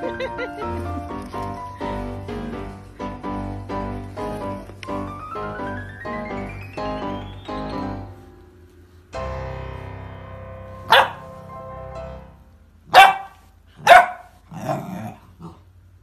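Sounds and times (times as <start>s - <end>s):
light background music: 0.0s - 12.6s
puppy barking: 10.8s - 11.3s, 12.9s - 15.6s.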